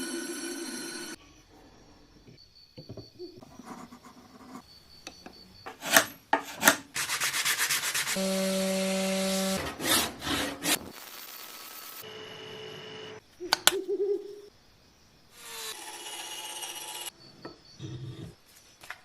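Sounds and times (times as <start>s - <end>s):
sanding scraping strokes: 6.5s - 8.2s.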